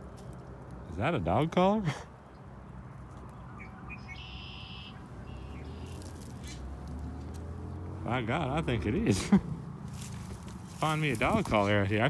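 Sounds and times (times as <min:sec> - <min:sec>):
songbird chirping: 0:02.2 - 0:08.6.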